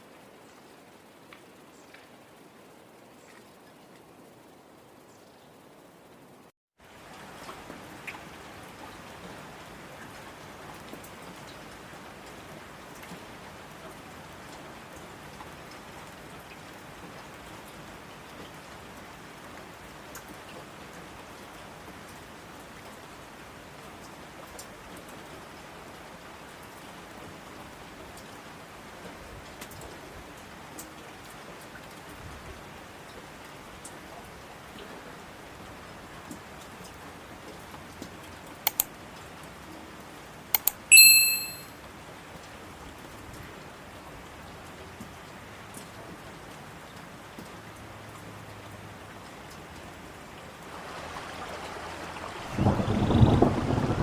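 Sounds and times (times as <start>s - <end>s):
steady rain falling: 0.0s - 40.5s, 41.7s - 54.0s
sharp clicks: 38.7s - 38.9s, 40.6s - 41.6s
high-pitched tone: 40.6s - 41.7s.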